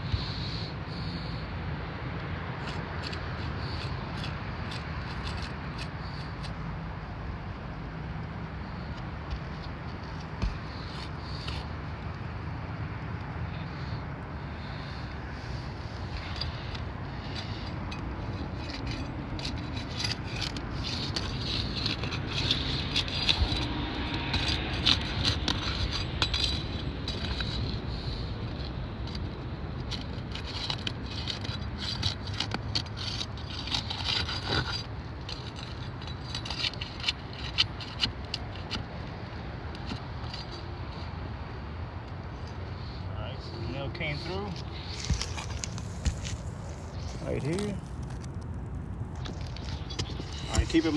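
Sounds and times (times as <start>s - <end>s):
scraping and tapping on roof shingles: 2.6s - 6.6s, 8.7s - 11.9s, 14.6s - 41.1s, 44.0s - 50.9s
steady low rumble: 44.5s - 50.9s.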